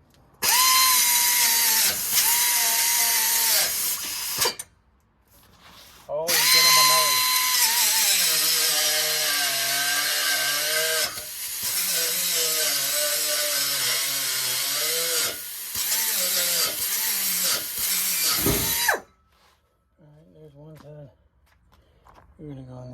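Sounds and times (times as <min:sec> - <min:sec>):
power tool cutting steel pipe: 0:00.4 - 0:04.7, 0:06.3 - 0:19.1.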